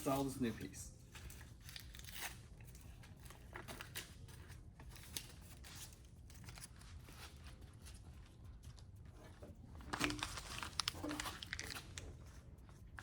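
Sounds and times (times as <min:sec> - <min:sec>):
material crinkling and rustling: 0:01.1 - 0:13.0.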